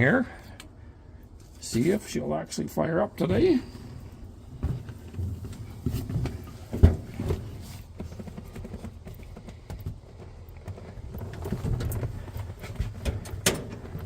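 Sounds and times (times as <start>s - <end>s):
knocks and thumps: 4.6s - 13.7s.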